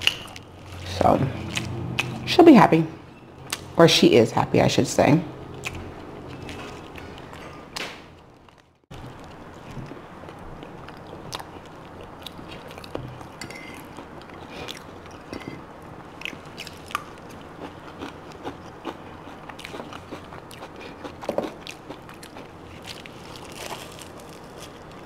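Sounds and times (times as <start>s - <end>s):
chewing and biting food: 8.4s - 15.3s, 16.2s - 25.0s.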